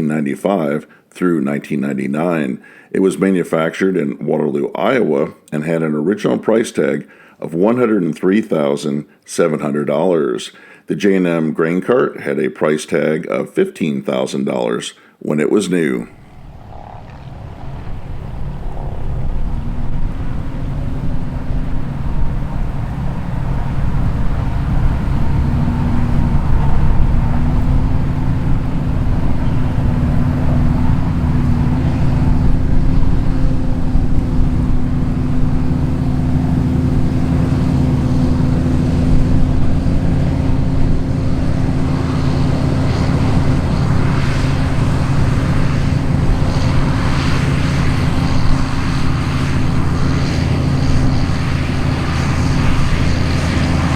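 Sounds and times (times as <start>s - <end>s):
diesel engine running: 16.1s - 53.9s.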